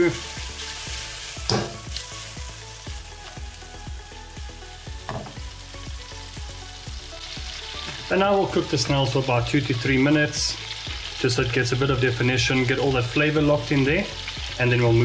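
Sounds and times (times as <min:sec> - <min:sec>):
food sizzling in oil: 0:00.0 - 0:15.0
wok scraping and knocking: 0:01.3 - 0:02.2, 0:04.9 - 0:05.5.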